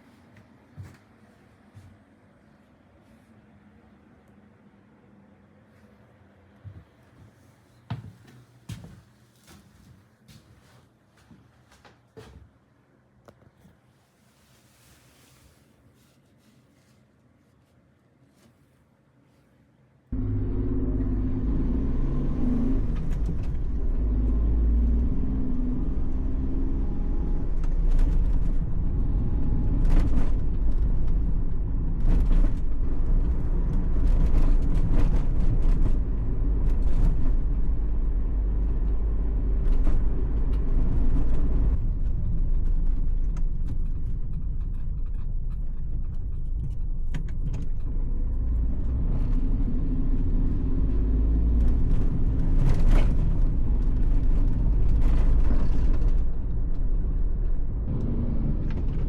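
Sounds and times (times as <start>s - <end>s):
engine and road rumble: 20.1s - 59.0s.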